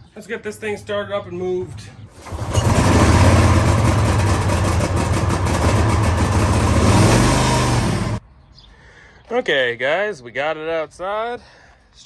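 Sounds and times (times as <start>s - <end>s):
small engine running steadily: 2.2s - 8.2s.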